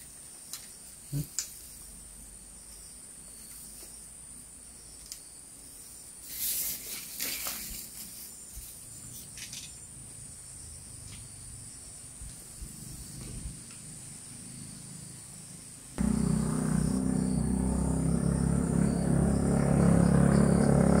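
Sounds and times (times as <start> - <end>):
insects chirring: 0.0 - 21.0
rushing hiss: 6.2 - 8.2.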